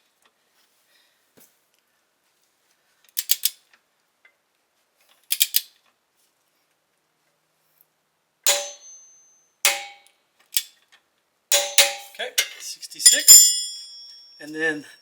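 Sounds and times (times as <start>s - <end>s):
ringing metallic clinks: 8.5s - 10.1s, 11.5s - 14.9s.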